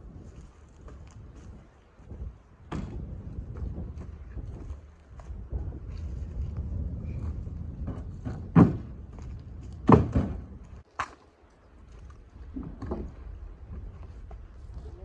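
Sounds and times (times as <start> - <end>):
steady low rumble: 2.2 - 10.8
heavy thunks: 7.2 - 10.8.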